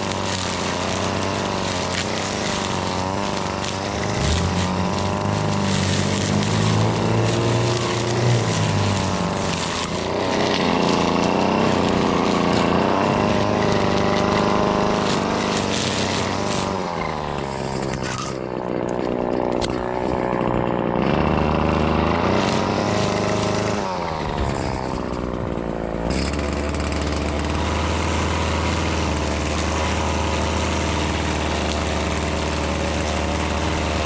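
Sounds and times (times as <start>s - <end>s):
string trimmer engine running: 0.0s - 34.0s.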